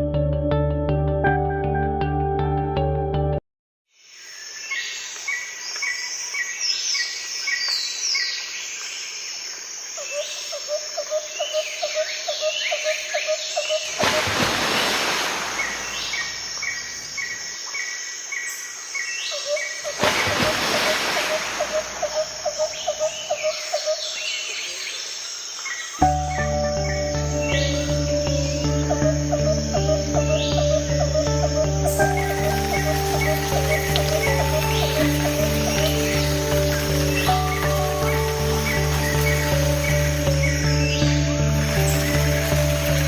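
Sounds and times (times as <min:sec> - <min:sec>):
high insect drone: 0:04.0 - 0:43.0
bird calls: 0:10.0 - 0:43.0.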